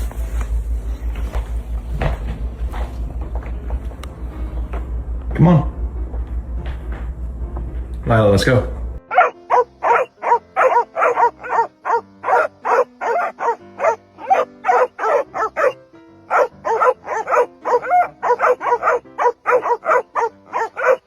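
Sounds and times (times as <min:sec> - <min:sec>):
dog barking rapidly: 0:09.1 - 0:21.0.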